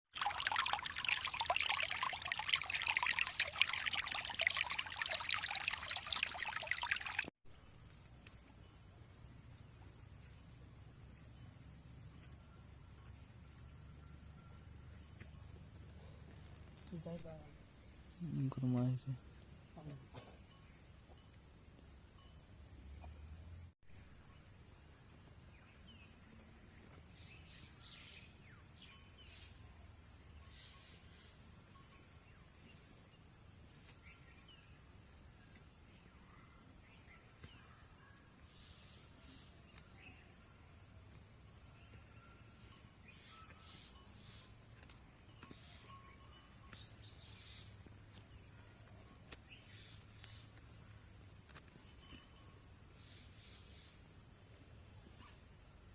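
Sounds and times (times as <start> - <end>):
water trickling and splashing: 0.1 - 7.4.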